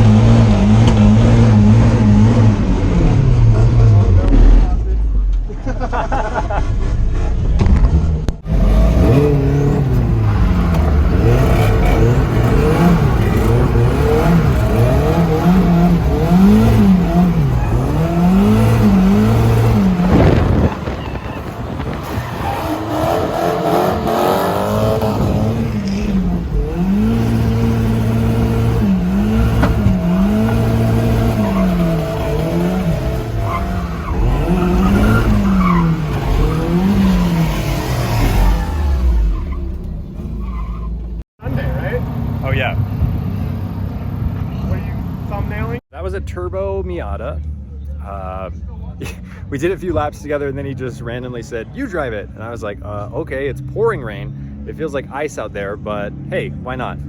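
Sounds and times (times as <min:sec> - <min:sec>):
car engine revving: 0:00.0 - 0:45.8
tyre squeal: 0:08.5 - 0:41.2.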